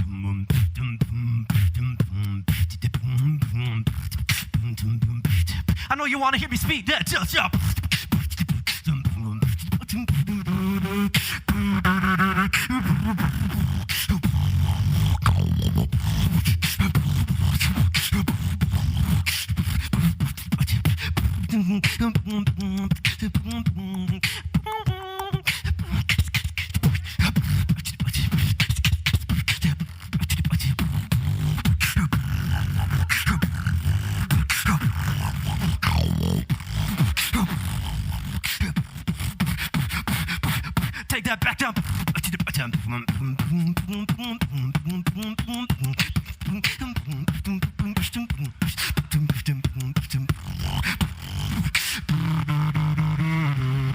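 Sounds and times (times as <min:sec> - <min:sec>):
beatboxing clicks and snare hits: 0:00.0 - 0:53.9
heavy bass: 0:00.0 - 0:53.9
warbling pitched vocal tones: 0:11.6 - 0:19.0, 0:30.2 - 0:39.1, 0:49.0 - 0:53.9.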